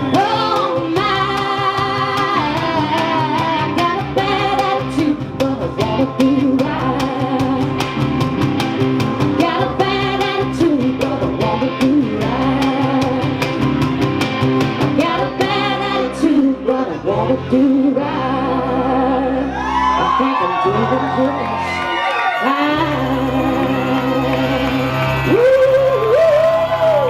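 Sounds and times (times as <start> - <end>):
person singing: 0.0 - 7.9, 9.4 - 13.5, 15.0 - 27.0
guitar: 0.0 - 27.0.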